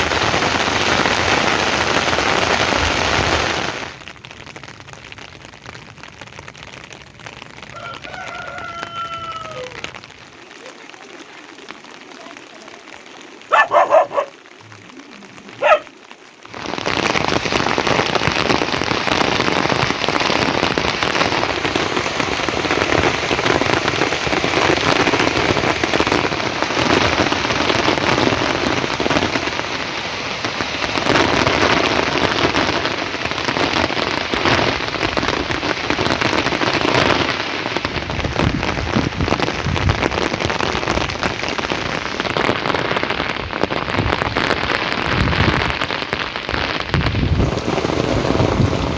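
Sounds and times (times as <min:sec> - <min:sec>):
heavy rain on hard surfaces: 0:00.0 - 0:48.9
dog barking: 0:13.5 - 0:16.0.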